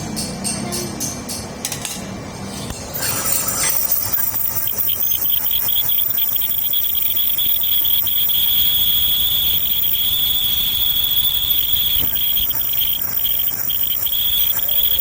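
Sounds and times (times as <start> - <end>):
insects chirring: 3.0 - 15.0.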